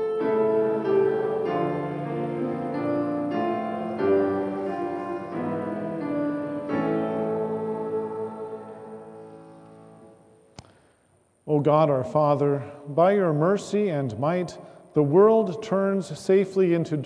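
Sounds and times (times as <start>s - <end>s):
church keyboard chords: 0.0s - 10.5s.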